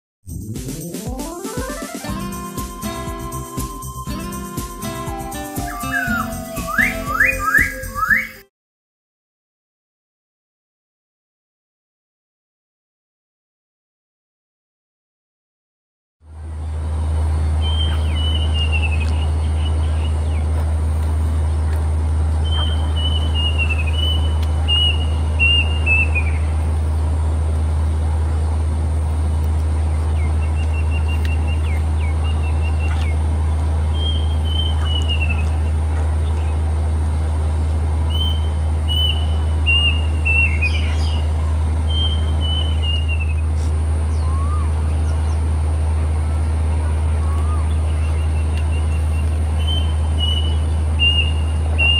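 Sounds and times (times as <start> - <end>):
cuckoo singing: 1.1 - 8.5, 22.4 - 26.4, 34.0 - 35.6, 44.1 - 45.1, 47.1 - 51.9
steady low hum: 16.3 - 51.9.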